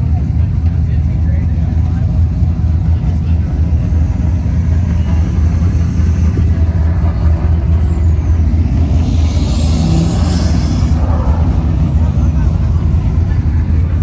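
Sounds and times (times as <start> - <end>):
car engine rumbling: 0.0 - 14.0
rush of higher noise: 3.6 - 14.0.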